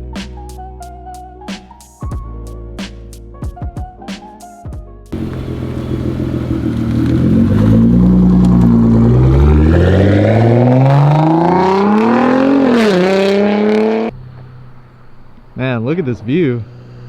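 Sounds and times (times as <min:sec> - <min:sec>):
car engine accelerating hard: 0:05.1 - 0:17.0.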